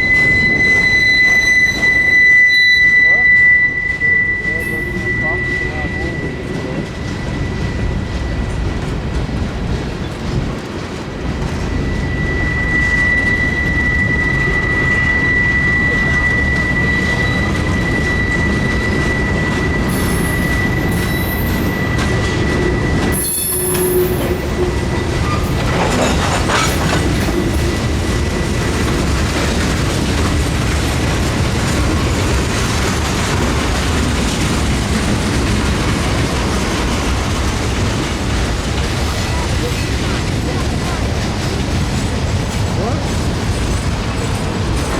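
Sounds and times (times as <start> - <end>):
steady high tone: 0.0 - 9.2
wheel squeals: 0.0 - 10.4, 11.4 - 41.2
freight train rolling past: 0.0 - 44.9.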